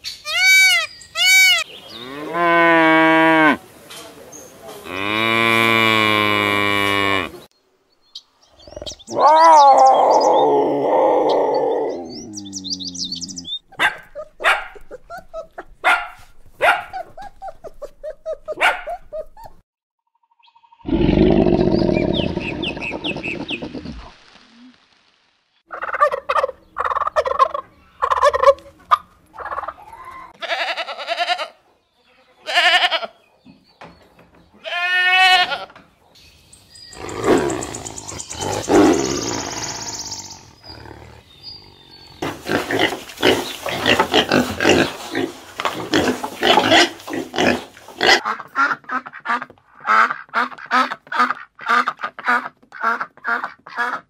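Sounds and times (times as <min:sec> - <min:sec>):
bleat-like animal cries: 0:00.3 - 0:01.6, 0:30.4 - 0:31.6, 0:32.4 - 0:33.1, 0:34.6 - 0:35.7.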